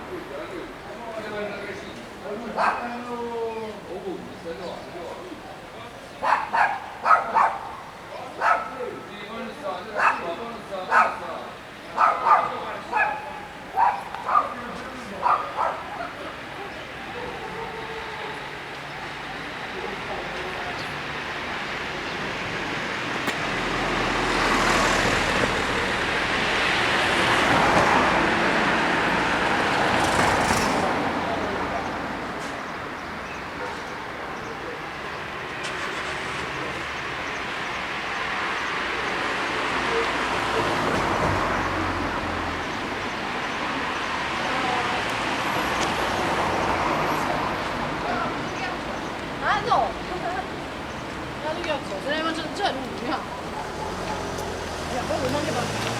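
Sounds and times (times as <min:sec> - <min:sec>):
vehicle passing rumble: 0:11.9 - 0:55.9.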